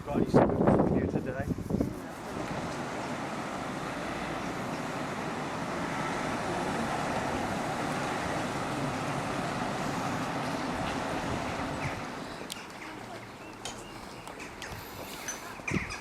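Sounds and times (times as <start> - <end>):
road traffic rushing past: 1.7 - 16.0.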